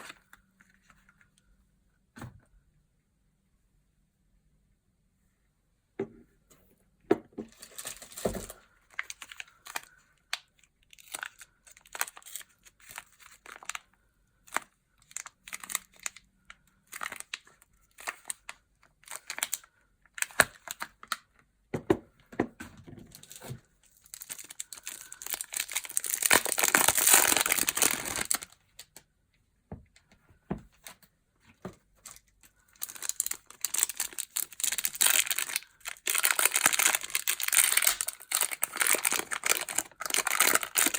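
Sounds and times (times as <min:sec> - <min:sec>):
packaging crinkling and tearing: 0:07.5 - 0:13.8, 0:14.5 - 0:21.2, 0:23.1 - 0:29.0, 0:32.0 - 0:40.9.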